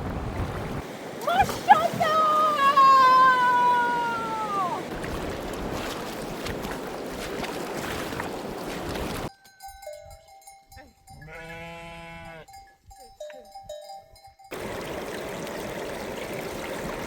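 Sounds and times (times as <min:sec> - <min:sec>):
river water rushing: 0:00.0 - 0:09.3, 0:14.5 - 0:17.0
faint steady ringing tones: 0:09.3 - 0:11.4
sheep bleating: 0:11.2 - 0:12.5.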